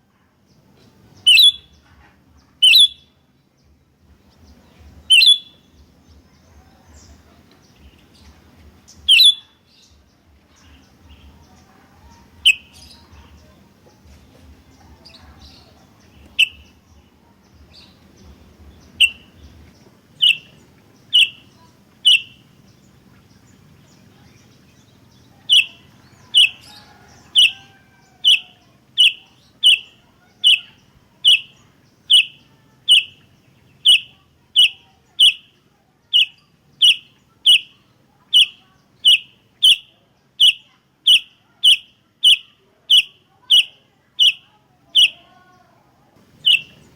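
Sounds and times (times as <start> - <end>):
bulbul short sharp calls: 1.2 - 1.8, 2.6 - 3.1, 5.1 - 5.6, 9.1 - 9.5, 19.0 - 19.4, 20.2 - 22.6, 25.4 - 45.3, 46.2 - 46.9.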